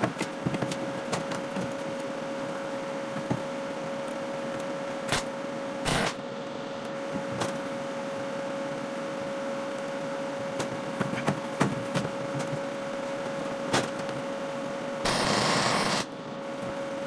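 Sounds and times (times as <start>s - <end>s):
machine hum: 5.9s - 6.2s, 15.0s - 16.1s.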